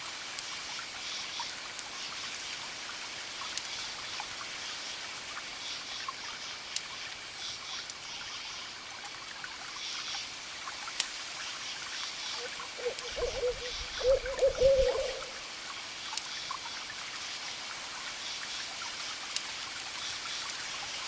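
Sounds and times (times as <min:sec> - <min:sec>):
campfire crackling and popping: 0:03.4 - 0:03.8
steady soft hiss: 0:09.8 - 0:21.0
crickets chirping: 0:12.3 - 0:15.4.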